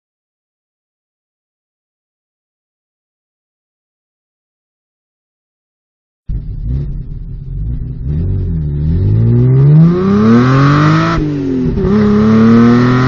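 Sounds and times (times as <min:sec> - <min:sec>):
car engine accelerating hard: 0:06.3 - 0:13.0.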